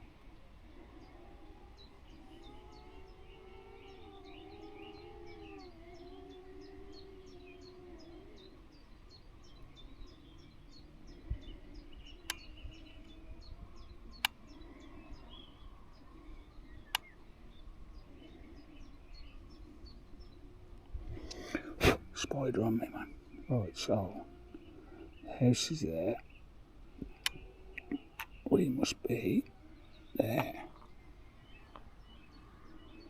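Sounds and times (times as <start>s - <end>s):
small birds chirping: 0.0s - 33.0s
sharp clicks: 14.2s - 14.4s, 16.9s - 17.1s, 27.0s - 28.4s.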